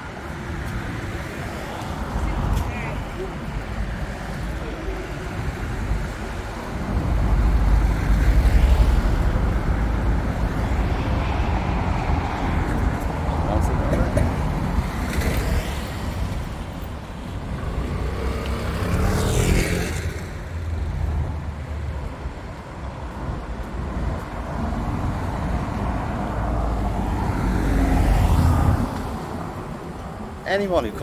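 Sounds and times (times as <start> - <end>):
steady traffic rumble: 0.0 - 31.0
vehicles passing by: 0.0 - 31.0.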